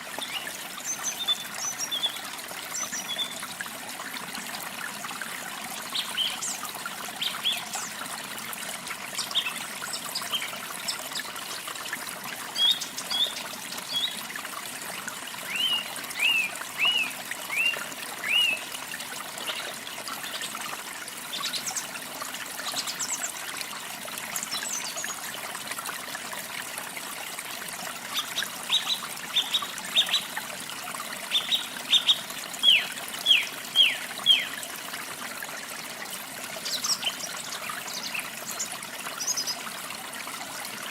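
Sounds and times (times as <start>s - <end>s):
trickle of running water: 0.0s - 40.9s
small birds chirping: 31.3s - 34.5s.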